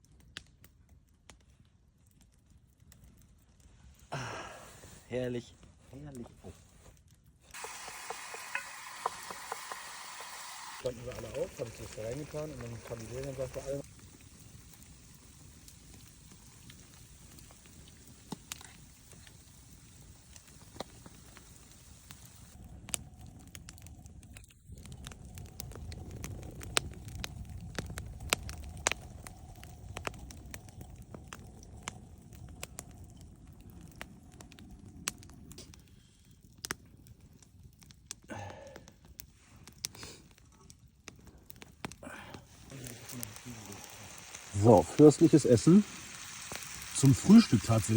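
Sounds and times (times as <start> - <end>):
campfire crackling and popping: 0.0 - 47.9.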